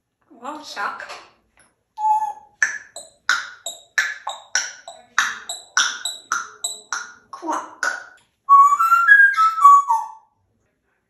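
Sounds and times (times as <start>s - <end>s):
parrot whistle: 2.0s - 7.2s, 7.8s - 10.3s
parrot clicking mouth sounds: 2.0s - 8.2s.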